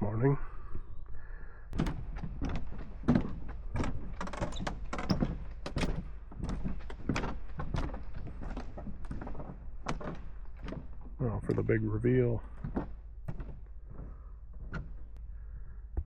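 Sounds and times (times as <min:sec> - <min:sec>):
footsteps walking: 0:01.8 - 0:15.2
low steady rumble: 0:09.7 - 0:16.0.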